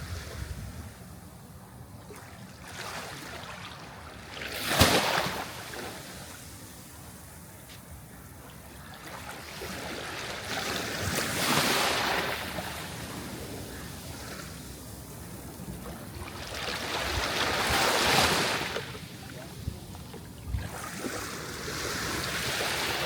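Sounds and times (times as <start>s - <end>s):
sea waves breaking on shore: 2.1s - 7.3s, 8.7s - 23.0s.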